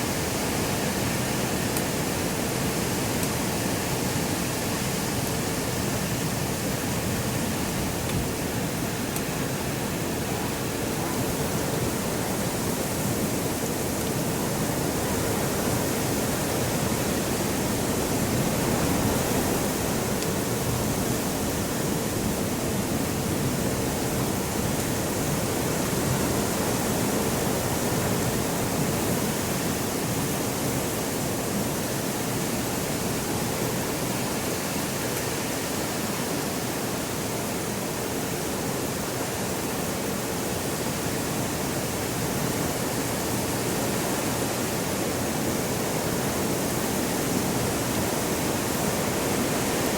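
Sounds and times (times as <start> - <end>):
wind blowing: 0.0 - 49.9.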